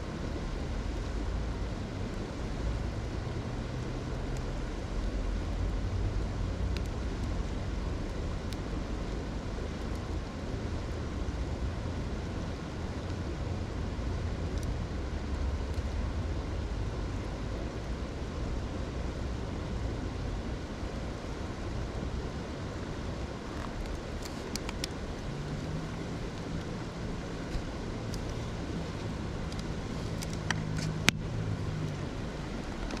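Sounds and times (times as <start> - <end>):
river water rushing: 0.0 - 33.0
faint clicks: 14.5 - 15.9, 23.5 - 26.7.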